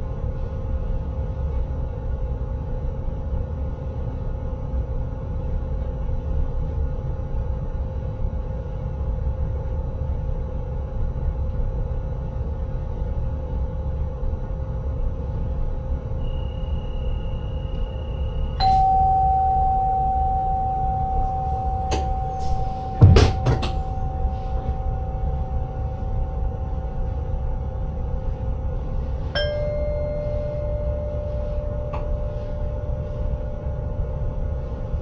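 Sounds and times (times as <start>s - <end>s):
train running rumble and hum: 0.0s - 35.0s
chime tone: 18.6s - 27.4s, 29.4s - 33.6s
loud single knock: 22.9s - 23.9s.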